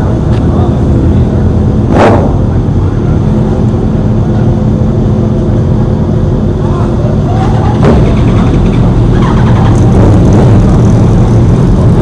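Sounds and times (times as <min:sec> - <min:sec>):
motorcycle engines running: 0:00.0 - 0:12.0
sharp loud bang: 0:01.9 - 0:02.5.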